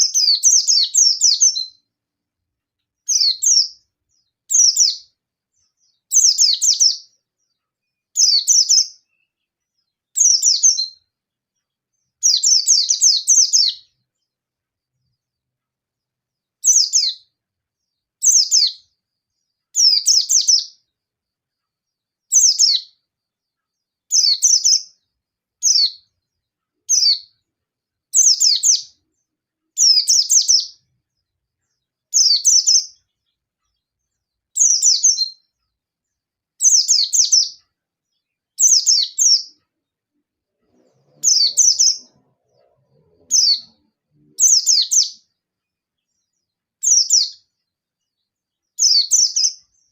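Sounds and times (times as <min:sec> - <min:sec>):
bird chirping in rapid bursts: 0:00.0 - 0:01.9, 0:03.0 - 0:11.2, 0:11.8 - 0:14.3, 0:16.6 - 0:17.4, 0:18.1 - 0:19.0, 0:19.7 - 0:20.9, 0:22.2 - 0:23.1, 0:23.8 - 0:27.5, 0:28.1 - 0:35.6, 0:36.6 - 0:37.7, 0:38.4 - 0:39.6, 0:40.6 - 0:47.6, 0:48.6 - 0:49.9.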